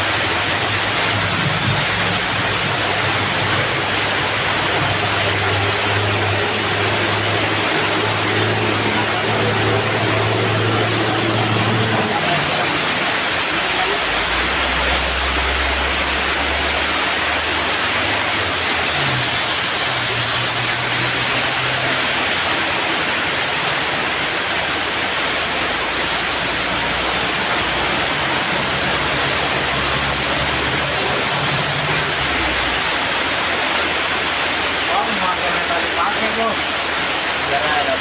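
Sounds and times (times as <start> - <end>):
diesel truck engines droning: 0.0 - 35.0
loud rushing noise: 0.0 - 38.0.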